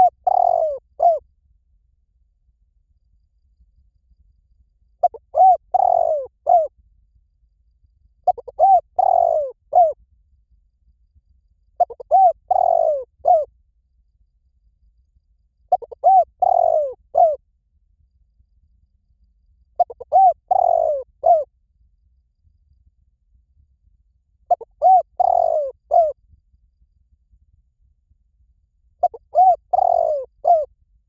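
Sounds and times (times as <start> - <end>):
dove cooing: 0.0 - 1.2, 5.0 - 6.7, 8.2 - 10.0, 11.8 - 13.5, 15.7 - 17.4, 19.8 - 21.5, 24.5 - 26.2, 29.0 - 30.7.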